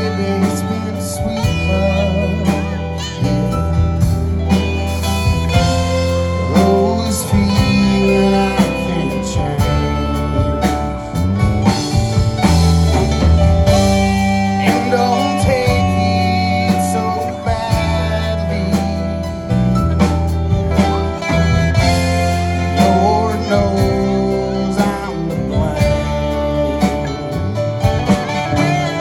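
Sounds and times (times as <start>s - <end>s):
rock band playing slow song: 0.0s - 29.0s.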